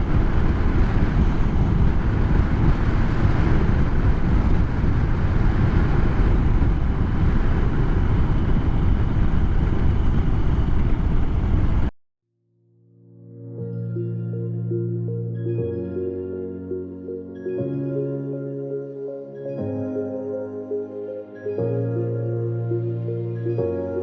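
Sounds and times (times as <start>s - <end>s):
motorcycle engine and road noise: 0.0s - 11.9s
wind buffeting microphone: 0.0s - 11.9s.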